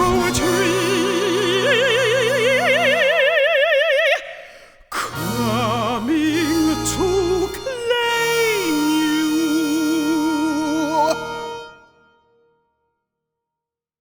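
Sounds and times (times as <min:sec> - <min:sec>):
operatic soprano singing: 0:00.0 - 0:11.5
low instrumental accompaniment: 0:05.2 - 0:12.0.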